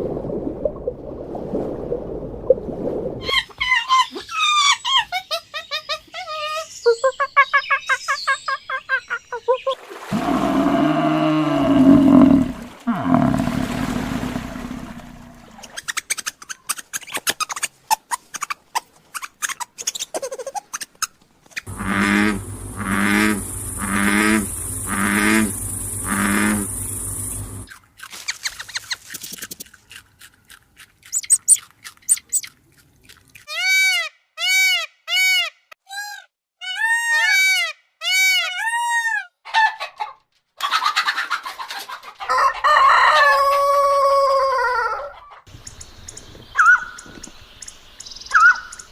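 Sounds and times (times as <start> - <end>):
pulsed animal calls: 10.1 - 15.7, 21.7 - 27.7
short arched animal calls: 21.7 - 27.6
chicken calling: 21.7 - 27.7.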